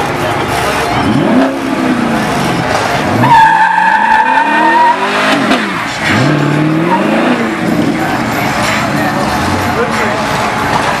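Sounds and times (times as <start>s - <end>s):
car engine revving: 0.4s - 11.0s
tyre squeal: 2.3s - 7.5s.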